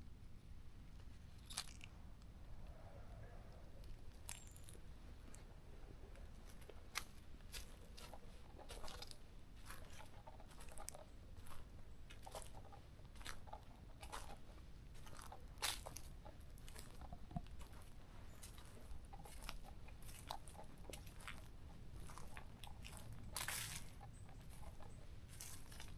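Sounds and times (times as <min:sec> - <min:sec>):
footsteps on a forest trail: 0:06.3 - 0:25.9.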